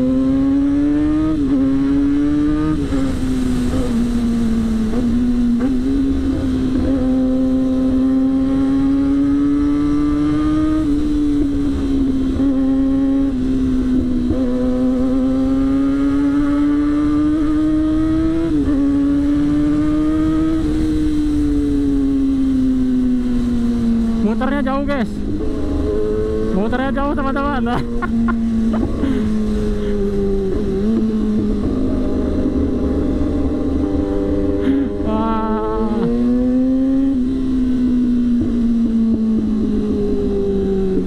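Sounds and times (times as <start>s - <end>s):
motorcycle engine running hard: 0.0s - 41.0s
wind noise rumble: 27.7s - 41.0s.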